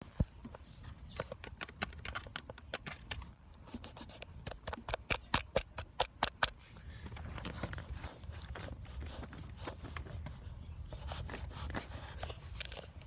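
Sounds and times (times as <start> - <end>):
sharp taps and clicks: 1.2 - 6.6.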